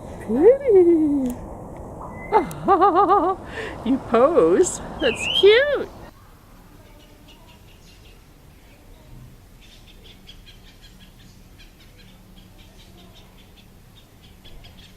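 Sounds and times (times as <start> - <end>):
low background hum: 0.0 - 14.9
small birds chirping: 3.7 - 14.9.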